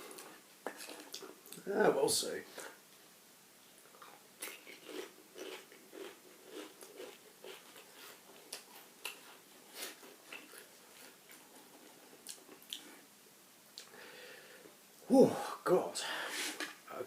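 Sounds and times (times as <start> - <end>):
crisps being chewed: 3.9 - 13.0.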